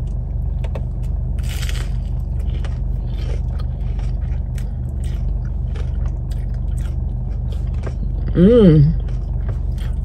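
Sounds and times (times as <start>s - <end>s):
chewing with small crunches: 0.0s - 10.0s
idling car hum: 0.0s - 10.0s
crunchy bite into sandwich: 1.4s - 10.0s.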